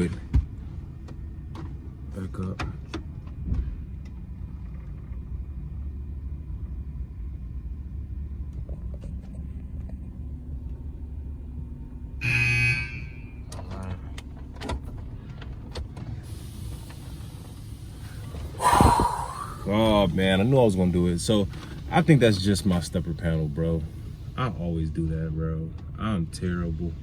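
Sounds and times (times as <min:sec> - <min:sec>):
truck engine idling: 0:00.0 - 0:27.0
hiss: 0:16.2 - 0:24.6.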